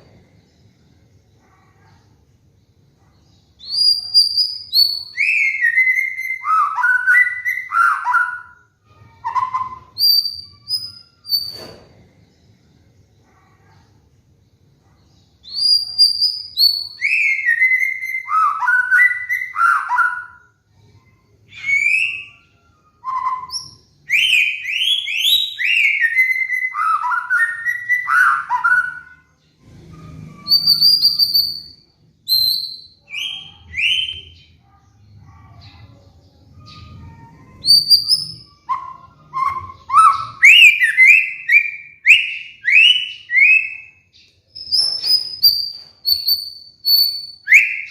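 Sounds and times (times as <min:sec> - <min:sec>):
bird singing whistled phrases: 0:03.6 - 0:08.6, 0:09.2 - 0:11.6, 0:15.4 - 0:20.5, 0:21.5 - 0:29.3, 0:30.4 - 0:34.5, 0:36.6 - 0:47.9.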